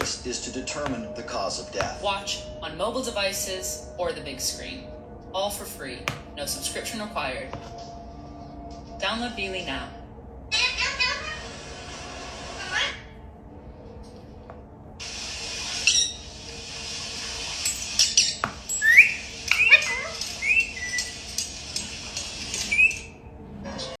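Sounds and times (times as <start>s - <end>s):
parrot chirps and whistles: 15.8s - 16.2s, 18.0s - 21.2s, 22.6s - 23.2s.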